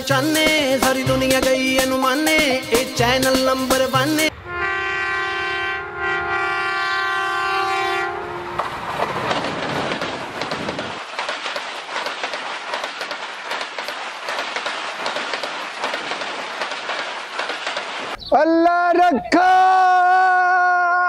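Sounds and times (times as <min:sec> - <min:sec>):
train horn chord: 0:04.3 - 0:08.7
train wheels clattering: 0:08.5 - 0:18.2.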